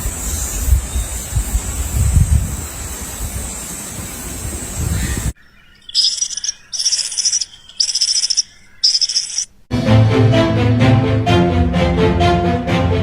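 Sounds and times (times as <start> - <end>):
wind buffeting microphone: 0.0 - 5.4
bird chirping: 4.4 - 9.6.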